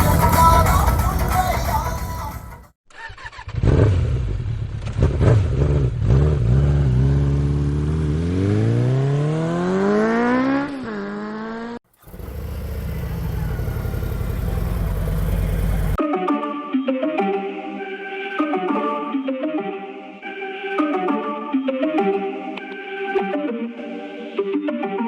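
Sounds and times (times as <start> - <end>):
motorcycle engine revving: 3.0 - 16.0.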